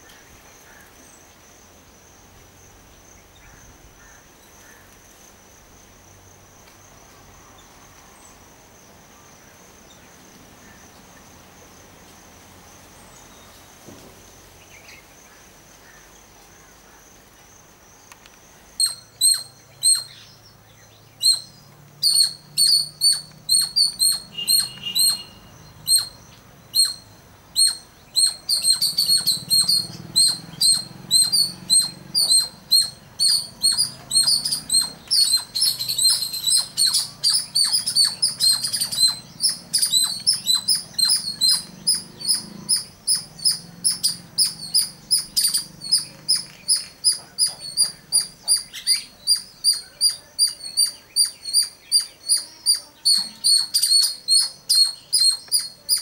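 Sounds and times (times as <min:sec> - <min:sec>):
bird chirping: 0:18.0 - 0:56.0.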